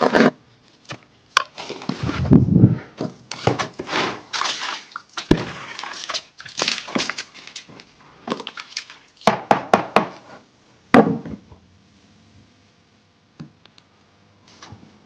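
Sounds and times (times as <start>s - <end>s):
scraping and rustling: 0.0s - 0.4s, 1.5s - 8.5s.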